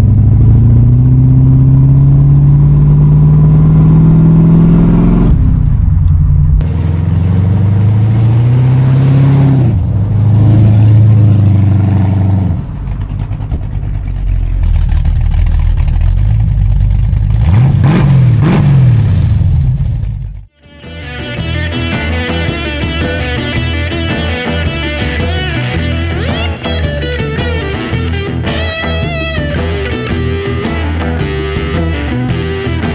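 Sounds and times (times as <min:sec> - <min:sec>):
car engine revving: 0:00.0 - 0:20.5.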